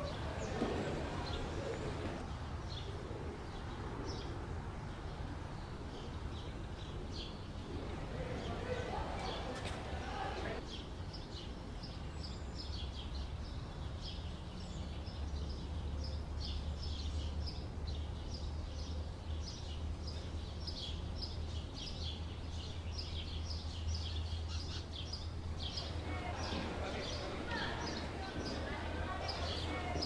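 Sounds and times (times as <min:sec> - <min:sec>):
low outdoor rumble: 0:00.0 - 0:10.7, 0:23.3 - 0:30.0
small birds chirping: 0:00.0 - 0:30.0.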